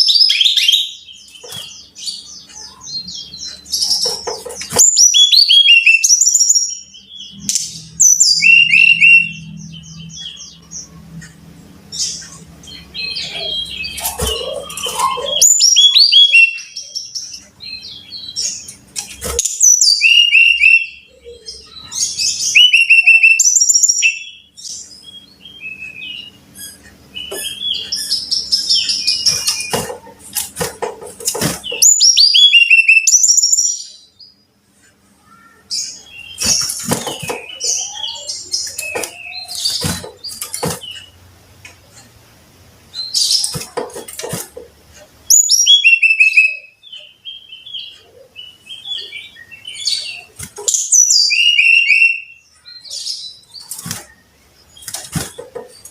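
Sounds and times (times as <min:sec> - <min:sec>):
bird singing high whistled notes: 0:45.3 - 0:46.8, 0:50.8 - 0:52.4.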